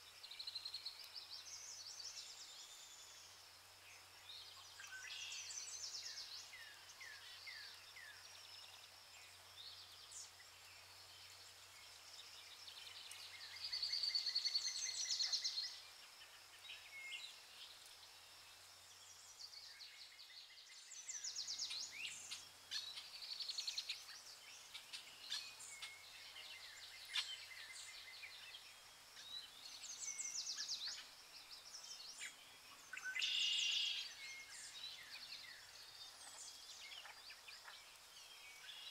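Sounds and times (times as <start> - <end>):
birds chirping and trilling: 18.9 - 38.9.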